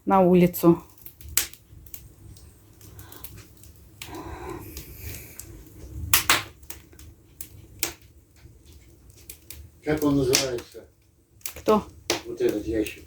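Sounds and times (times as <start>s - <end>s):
firewood crackling and popping: 0.0s - 13.0s
soft breathy noise: 2.5s - 6.1s.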